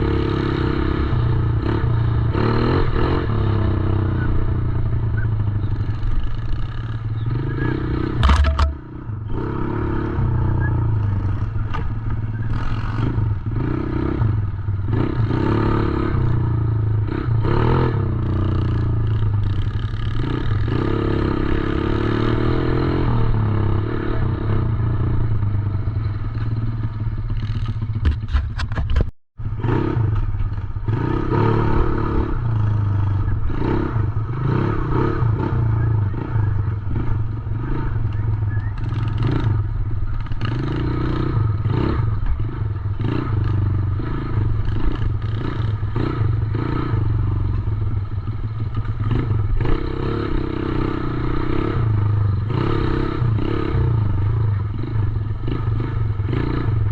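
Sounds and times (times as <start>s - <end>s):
dirt bike engine revving: 0.0s - 28.8s, 29.4s - 56.9s
sharp knock: 8.2s - 8.8s.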